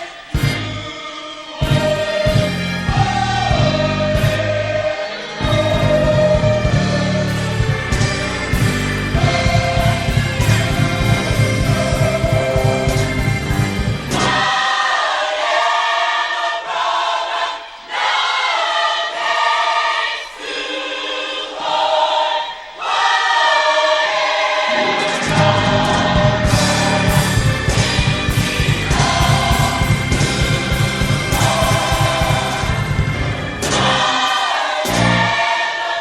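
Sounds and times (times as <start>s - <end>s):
gospel choir singing: 0.0s - 36.0s
band with bass and drums: 0.4s - 0.8s, 1.6s - 4.7s, 5.4s - 14.5s, 25.2s - 34.0s.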